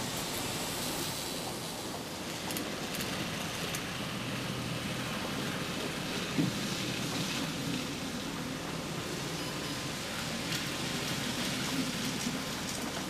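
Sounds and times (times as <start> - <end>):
model train rolling rattle: 0.0 - 4.2, 9.2 - 13.0.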